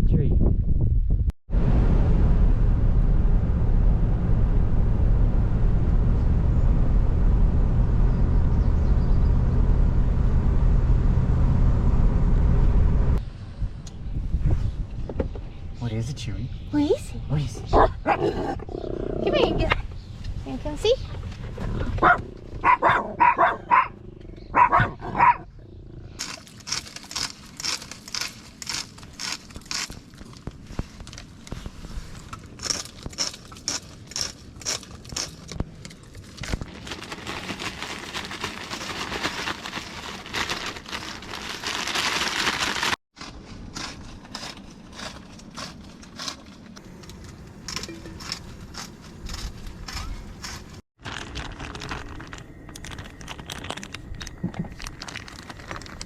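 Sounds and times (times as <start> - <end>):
dog barking: 17.7 - 18.4, 22.0 - 25.5
rustling: 26.0 - 56.0.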